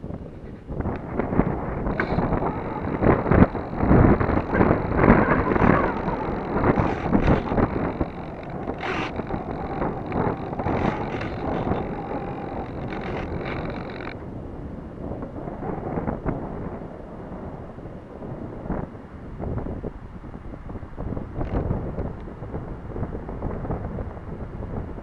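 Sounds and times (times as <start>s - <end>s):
wind buffeting microphone: 0.0s - 25.0s
faint high whine: 0.9s - 14.2s.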